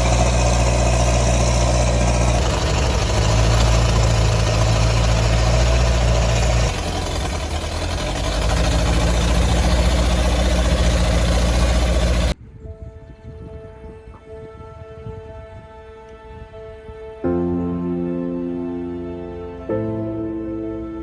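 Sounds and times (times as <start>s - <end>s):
excavator diesel engine running: 0.0s - 12.4s
quiet music: 12.4s - 21.0s.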